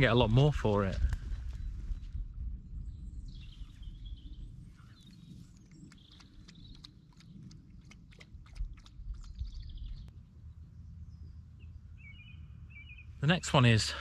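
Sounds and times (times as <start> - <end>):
faint birdsong: 0.0 - 14.0
bird chirps: 2.8 - 7.6, 9.1 - 13.5.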